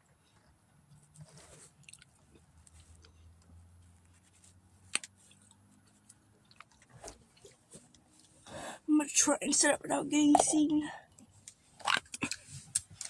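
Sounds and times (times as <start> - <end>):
chewing and mouth sounds: 1.8 - 3.2, 5.3 - 7.6, 11.8 - 13.0.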